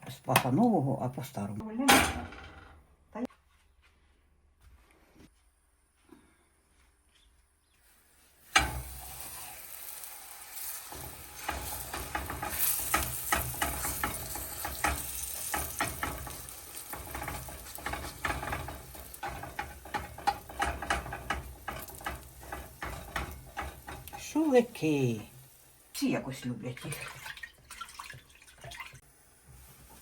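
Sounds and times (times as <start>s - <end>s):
food sizzling in a pan: 7.8s - 30.0s
utensil scraping a pan: 8.4s - 25.6s.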